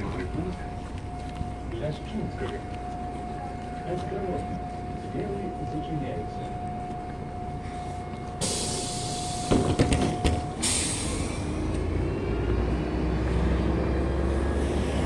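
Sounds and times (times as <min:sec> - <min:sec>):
bus door warning tone: 0:00.0 - 0:15.0
bus engine rumbling: 0:00.0 - 0:15.0
air hissing: 0:08.4 - 0:09.7, 0:10.6 - 0:11.6
bus doors knocking shut: 0:08.4 - 0:11.0.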